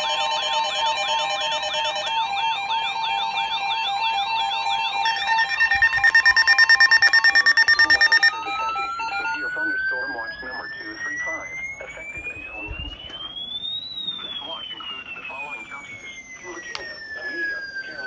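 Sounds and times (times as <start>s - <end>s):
steady electronic tones: 0.0s - 17.6s
electronic siren pitch sweeps: 0.0s - 18.0s
tone rising in pitch: 5.0s - 13.2s
fast pulsing beep: 5.0s - 18.0s.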